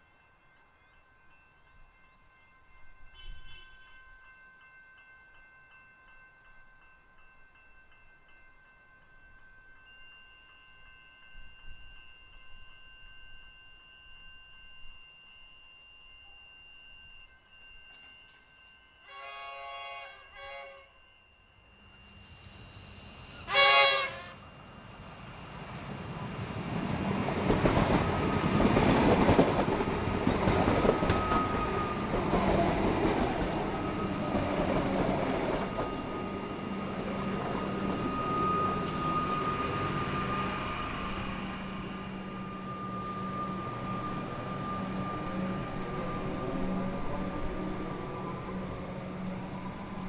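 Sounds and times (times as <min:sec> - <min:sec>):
electric train passing: 0:00.0 - 0:50.0
high train whine: 0:00.0 - 0:50.0
train horn toot: 0:03.1 - 0:04.0, 0:19.0 - 0:21.1, 0:23.4 - 0:24.5.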